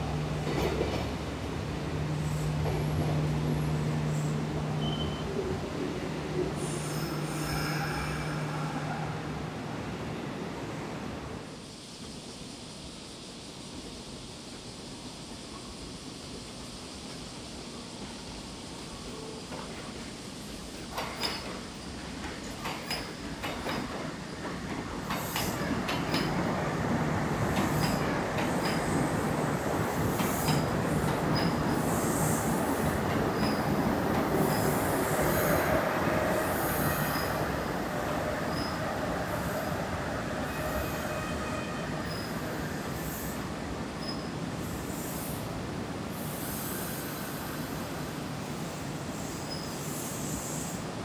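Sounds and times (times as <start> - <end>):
train running rumble: 0.0 - 12.2, 14.4 - 49.3
train wheel squeal: 3.6 - 5.6, 6.6 - 9.4, 20.9 - 26.5, 27.6 - 29.3, 30.0 - 45.5, 46.2 - 48.1, 48.8 - 50.9
wheels clicking over rail joints: 20.9 - 26.8, 27.4 - 29.1.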